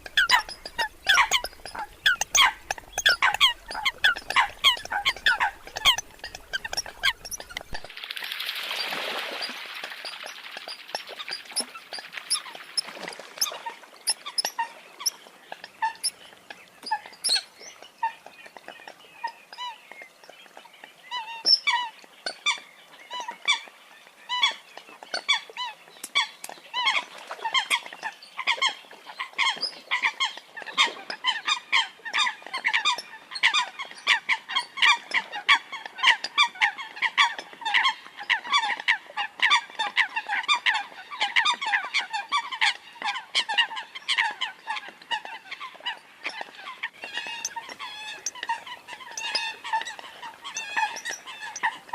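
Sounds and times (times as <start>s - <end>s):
coot calls: 0.0s - 7.9s.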